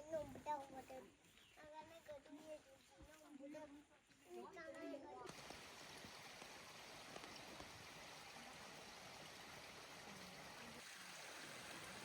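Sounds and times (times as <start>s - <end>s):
faint stream flowing: 4.1s - 12.0s.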